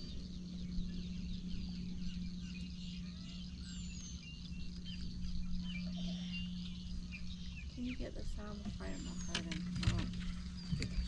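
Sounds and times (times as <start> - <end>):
small birds chirping: 0.0 - 11.0
steady low hum: 0.0 - 11.0.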